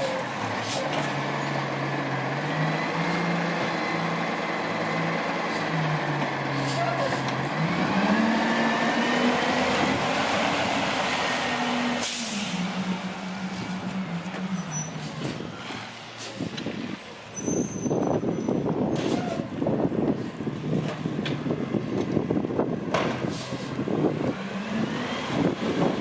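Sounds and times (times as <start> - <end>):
truck engine revving with whine: 7.4 - 16.0, 23.7 - 26.0
air brake hiss: 12.0 - 12.6.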